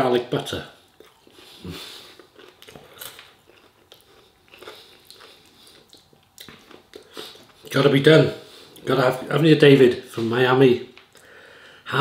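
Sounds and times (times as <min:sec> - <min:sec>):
chewing crisp bread: 0:00.8 - 0:07.8.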